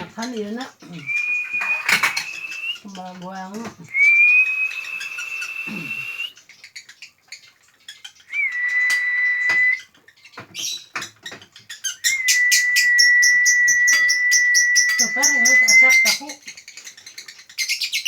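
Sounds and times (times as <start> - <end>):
high bird chirps: 0.9 - 10.9, 11.6 - 17.0
high steady whistle: 1.1 - 2.8, 3.9 - 6.3, 8.3 - 9.8, 12.0 - 16.3.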